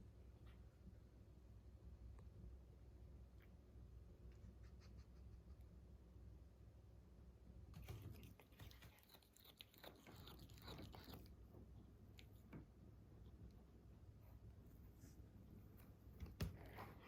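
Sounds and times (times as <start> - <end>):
cat chewing grass: 7.8 - 11.5.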